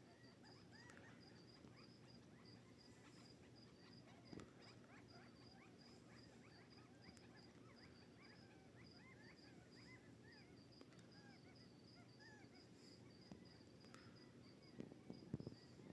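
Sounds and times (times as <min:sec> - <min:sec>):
quail chirping calls: 0:00.0 - 0:13.7
cricket chirping: 0:00.0 - 0:15.9.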